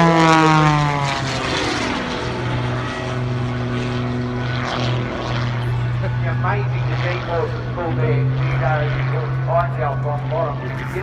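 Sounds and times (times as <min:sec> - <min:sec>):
biplane engine and propeller drone: 0:00.0 - 0:11.0.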